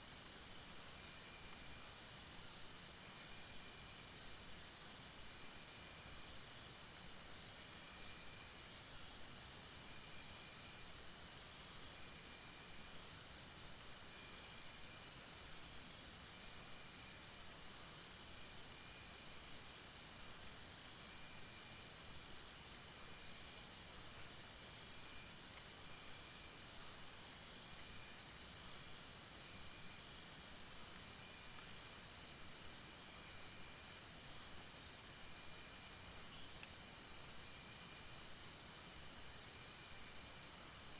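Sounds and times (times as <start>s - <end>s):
low pulsing insect call: 0.0s - 40.9s
insects trilling: 23.3s - 40.9s.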